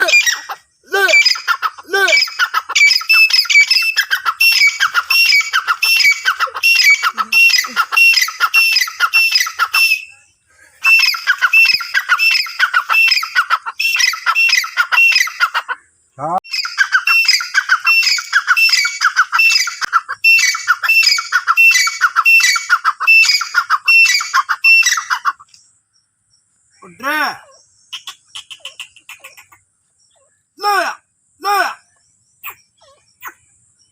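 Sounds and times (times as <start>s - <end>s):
francolin calling: 0.0s - 33.9s.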